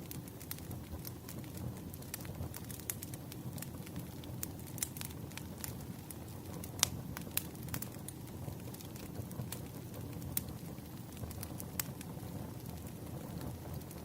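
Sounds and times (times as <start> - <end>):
burning wood crackling and popping: 0.0 - 14.0
campfire flames rumbling: 0.0 - 14.0.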